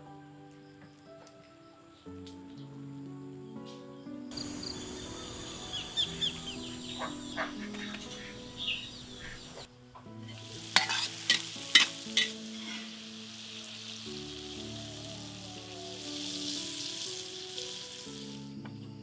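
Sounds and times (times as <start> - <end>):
eggs sizzling in a wok: 10.1 - 18.5.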